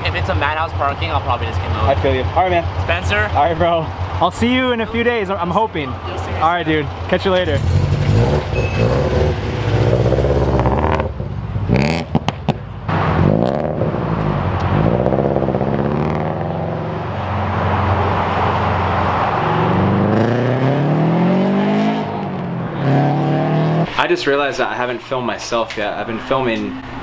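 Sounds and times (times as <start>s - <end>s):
car engine running: 0.0s - 20.3s.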